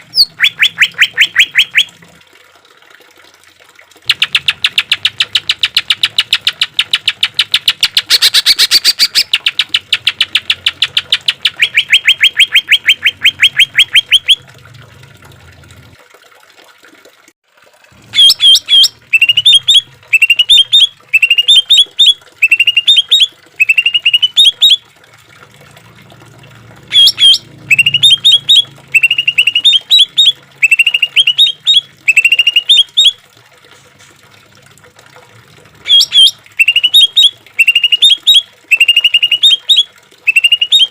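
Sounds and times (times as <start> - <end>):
bird trilling and chirping: 0.1 - 1.9, 4.1 - 14.4, 18.2 - 24.8, 26.9 - 33.1, 35.9 - 40.9.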